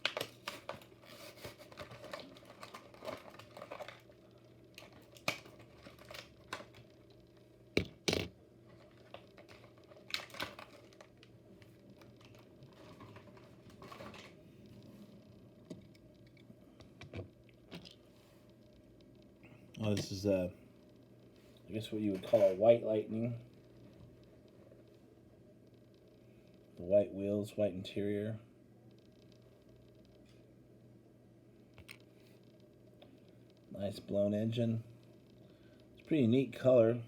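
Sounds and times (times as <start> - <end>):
plastic packaging crinkling: 0.0 - 7.2, 8.7 - 14.4.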